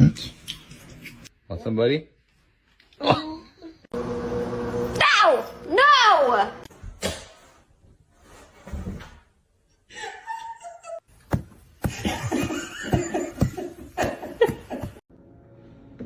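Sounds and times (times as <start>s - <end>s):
person laughing in bursts: 11.9s - 15.0s.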